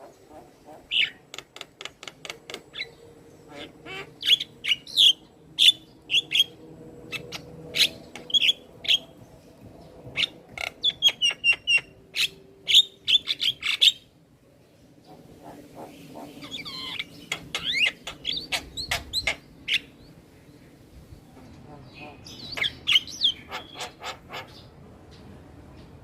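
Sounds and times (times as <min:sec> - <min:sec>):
bird chirps and squawks: 0:07.1 - 0:09.0, 0:15.4 - 0:19.9, 0:21.8 - 0:24.7.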